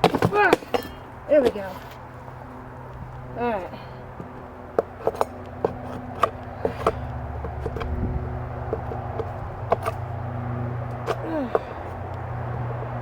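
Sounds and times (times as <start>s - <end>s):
metal tool knocking on wooden hive: 0.0s - 1.7s, 4.2s - 10.0s
low steady hum: 0.0s - 13.0s.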